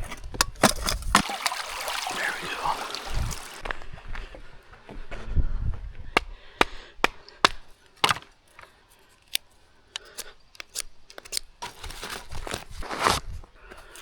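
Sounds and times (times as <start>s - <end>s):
sharp wooden cracks and knocks: 6.2s - 8.7s.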